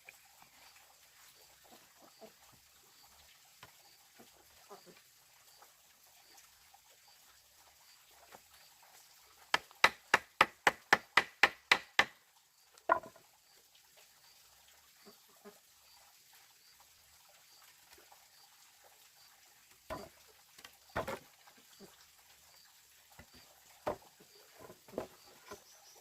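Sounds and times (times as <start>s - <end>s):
sharp strikes on wood: 9.5s - 12.2s, 12.9s - 13.2s, 19.9s - 20.1s, 21.0s - 21.2s
knocks: 12.9s - 13.2s, 19.9s - 20.1s, 21.0s - 21.2s.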